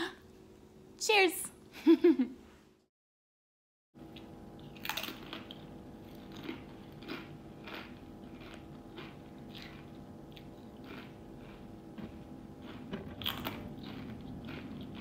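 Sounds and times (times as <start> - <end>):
faint steady hum: 4.0 - 15.0
person chewing crunchy chips: 4.0 - 15.0.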